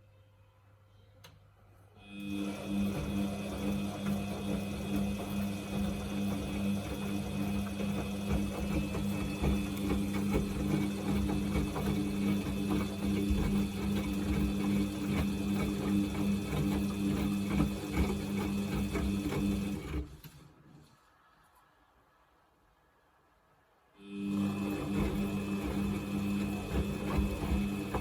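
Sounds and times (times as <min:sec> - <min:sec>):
washing machine motor hum: 0:02.0 - 0:20.6, 0:24.0 - 0:28.0.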